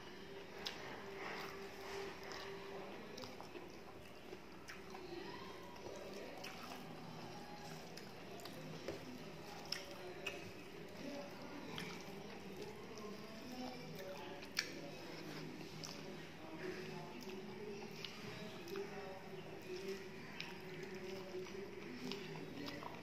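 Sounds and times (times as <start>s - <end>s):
wet chewing sounds: 0.4s - 23.0s.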